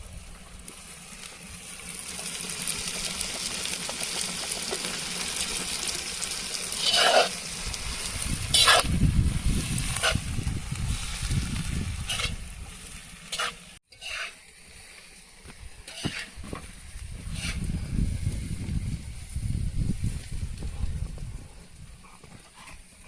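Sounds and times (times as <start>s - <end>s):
food frying in a pot: 0.0s - 19.3s
utensil scraping a pot: 6.8s - 7.4s, 8.5s - 9.0s, 9.8s - 10.3s, 12.0s - 12.4s, 13.3s - 14.4s, 15.9s - 16.4s, 17.2s - 17.8s.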